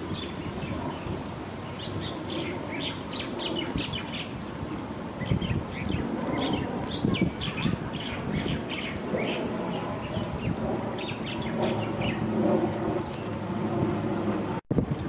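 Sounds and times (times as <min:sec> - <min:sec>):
small birds chirping: 0:00.1 - 0:04.4, 0:05.2 - 0:12.3.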